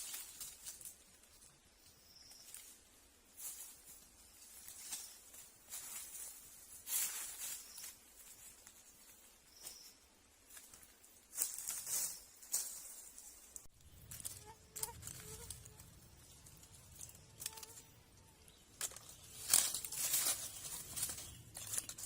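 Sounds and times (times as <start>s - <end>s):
hands rustling and scraping materials: 10.5s - 22.0s.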